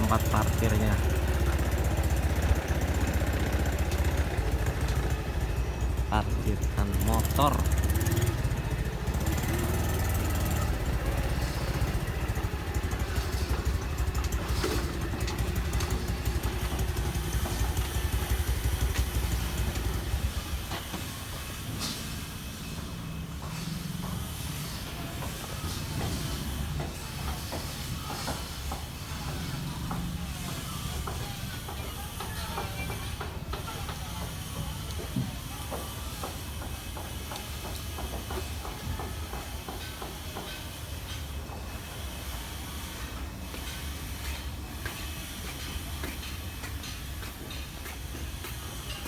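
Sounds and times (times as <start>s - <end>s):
motorcycle engine rumbling: 0.0s - 35.5s.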